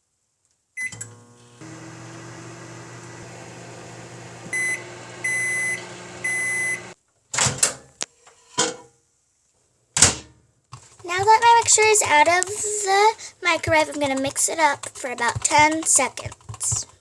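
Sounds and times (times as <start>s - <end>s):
long microwave beeps: 0.8s - 1.1s, 4.5s - 7.0s
microwave oven humming: 0.8s - 7.0s.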